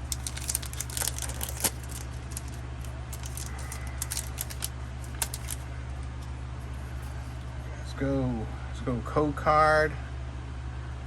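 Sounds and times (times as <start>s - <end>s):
trading cards clicking and snapping: 0.0s - 6.3s
steady low hum: 0.0s - 11.0s.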